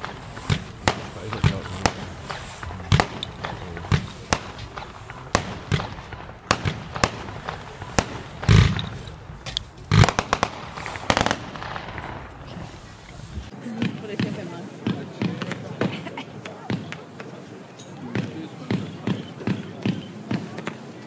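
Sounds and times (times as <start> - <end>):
heavy firework booms: 0.0 - 13.5
fireworks bangs and crackles: 0.0 - 21.0.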